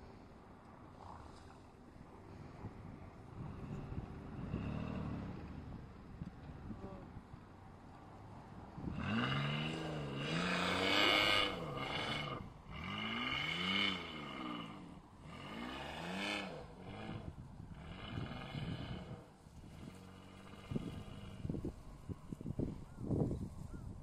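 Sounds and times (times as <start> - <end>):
raspy engine revving: 3.3 - 5.9, 8.7 - 22.7.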